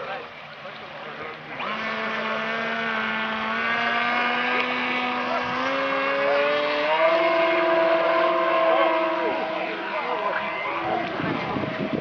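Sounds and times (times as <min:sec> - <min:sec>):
model plane motor revving: 0:01.5 - 0:10.0.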